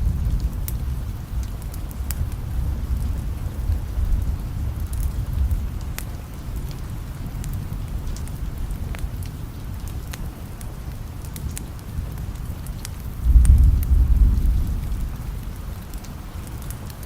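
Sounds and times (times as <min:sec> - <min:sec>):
steady rain: 0:00.0 - 0:17.0
fireplace crackling and popping: 0:00.1 - 0:17.0
distant thunder rumble: 0:13.2 - 0:15.6.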